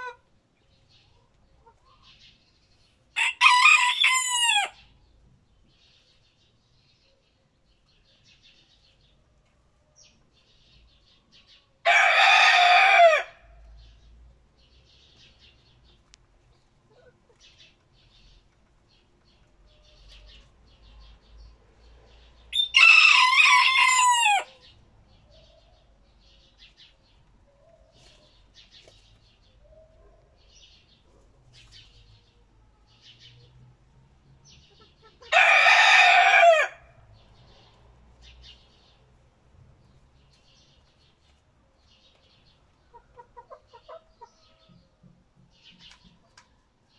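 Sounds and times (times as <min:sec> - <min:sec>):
small birds chirping: 0:00.0 - 0:03.2, 0:04.8 - 0:11.8, 0:13.5 - 0:22.8, 0:24.3 - 0:35.4, 0:37.2 - 0:46.9
roosters crowing: 0:03.2 - 0:04.9, 0:11.8 - 0:13.5, 0:22.5 - 0:24.7, 0:35.2 - 0:37.0.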